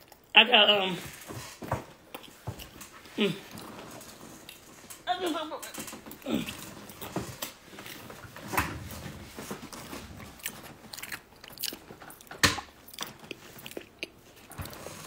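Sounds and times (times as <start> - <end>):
person chewing crunchy food: 0.0 - 0.4, 2.0 - 4.8, 6.1 - 15.0.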